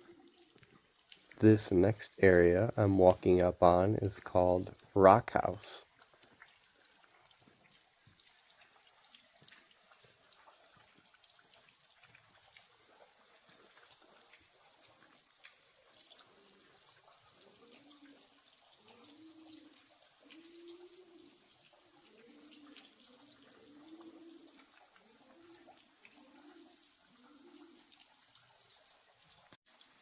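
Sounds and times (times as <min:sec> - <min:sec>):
water trickling and dripping: 0:00.0 - 0:30.0
pigeon cooing: 0:17.4 - 0:28.0.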